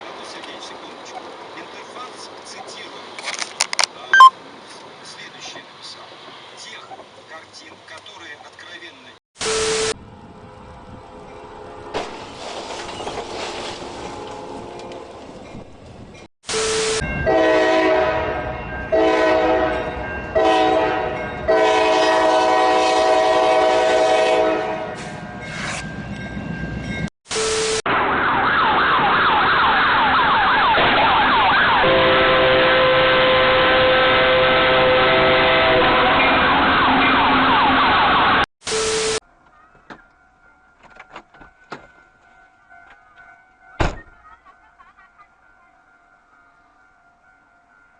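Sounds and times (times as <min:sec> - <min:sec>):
train horn blasts: 0:16.6 - 0:25.1, 0:31.8 - 0:36.9.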